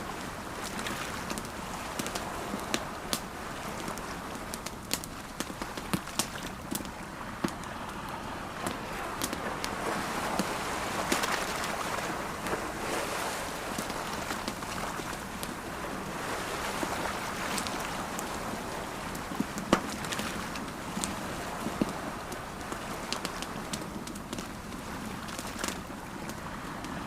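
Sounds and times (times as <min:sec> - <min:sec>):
campfire crackling: 0:00.0 - 0:27.0
sea waves: 0:00.0 - 0:27.0.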